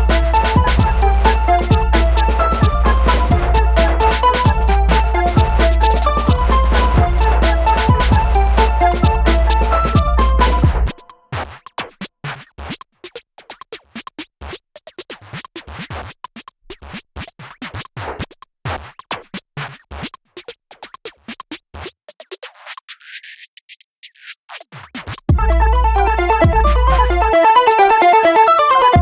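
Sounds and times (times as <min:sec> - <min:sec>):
electronic music: 0:00.0 - 0:11.2, 0:25.3 - 0:29.0.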